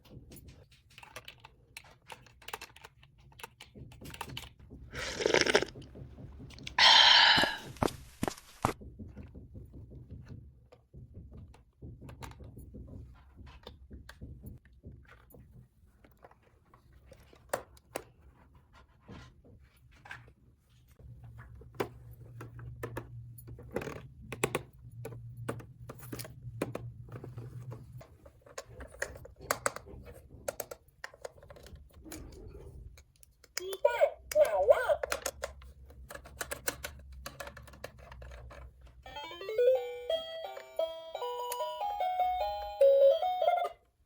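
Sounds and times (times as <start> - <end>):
clicks and taps of hard objects: 21.7 - 32.3, 33.0 - 38.8.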